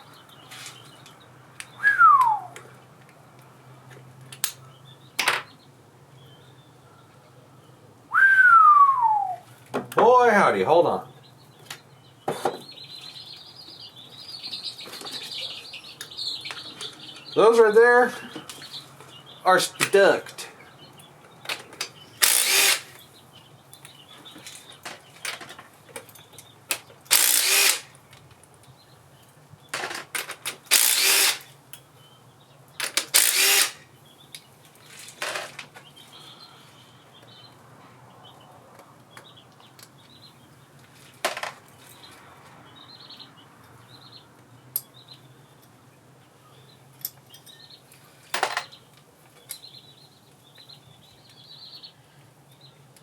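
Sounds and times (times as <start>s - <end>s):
small power tool bursts: 22.2s - 23.0s, 27.1s - 27.9s, 30.7s - 31.5s, 32.8s - 33.8s.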